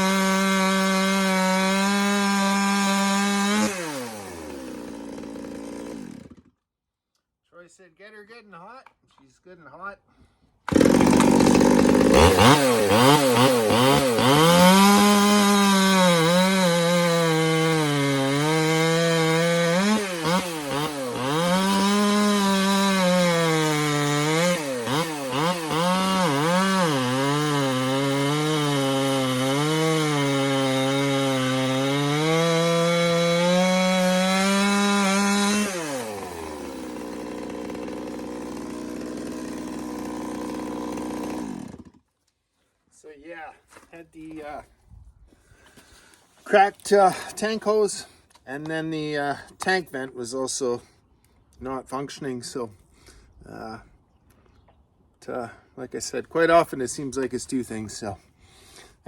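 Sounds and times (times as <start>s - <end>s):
chainsaw revving and idling: 0.0s - 6.6s, 10.7s - 42.1s.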